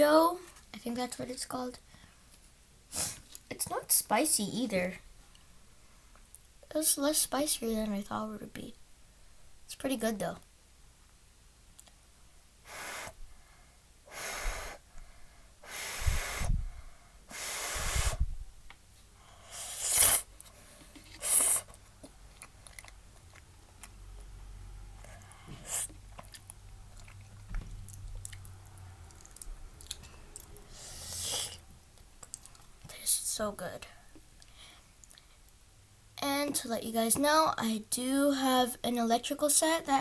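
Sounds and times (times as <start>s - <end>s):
noodle slurping: 19.5s - 20.4s, 21.1s - 23.8s
chewing with small clicks: 22.0s - 24.4s, 26.0s - 30.7s, 32.0s - 32.7s, 34.3s - 35.6s.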